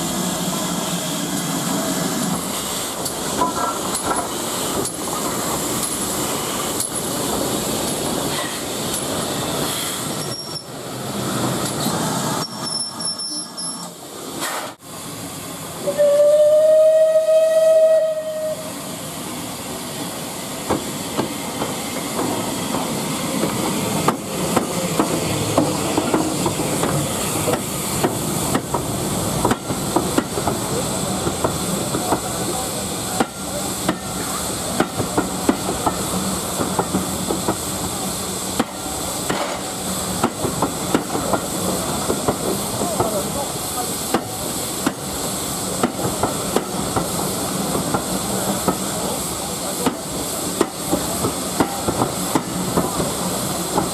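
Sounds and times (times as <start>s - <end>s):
steam hissing: 0.0s - 53.9s
train wheels clicking on rails: 1.3s - 10.7s, 19.6s - 53.9s
steam locomotive whistle: 15.8s - 18.8s.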